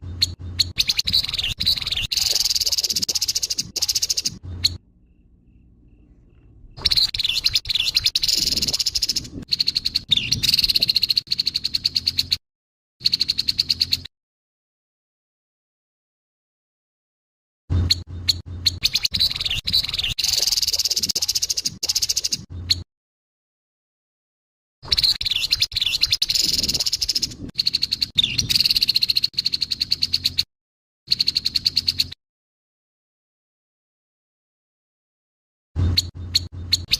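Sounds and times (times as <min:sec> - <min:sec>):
bird rasping rattling chatter: 0:00.6 - 0:04.8, 0:06.7 - 0:12.2.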